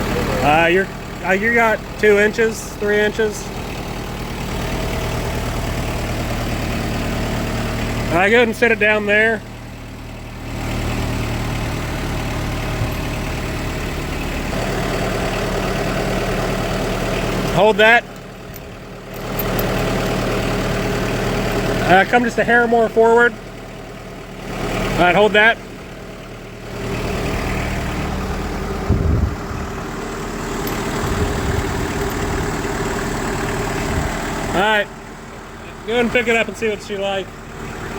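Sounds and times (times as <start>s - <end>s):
diesel engine running: 0.0s - 37.9s
low thump: 28.9s - 29.6s.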